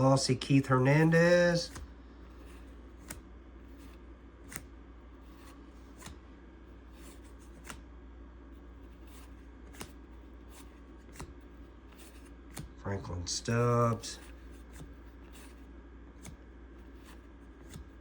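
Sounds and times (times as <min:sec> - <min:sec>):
low steady hum: 0:00.0 - 0:18.0
cards being handled: 0:00.5 - 0:07.9, 0:08.6 - 0:12.8, 0:13.6 - 0:18.0
card snapping down: 0:04.4 - 0:04.7, 0:09.7 - 0:10.0, 0:16.2 - 0:16.4.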